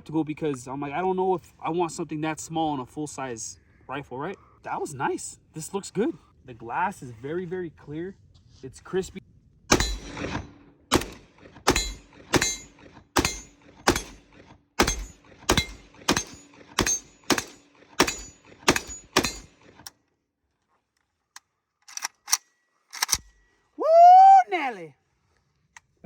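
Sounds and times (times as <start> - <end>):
rifle gunshots: 9.7 - 19.8.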